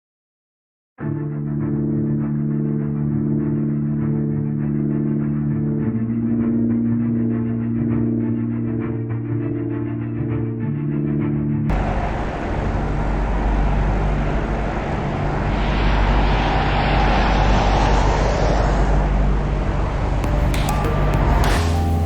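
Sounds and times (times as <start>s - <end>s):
jet engine roar: 11.7s - 20.2s.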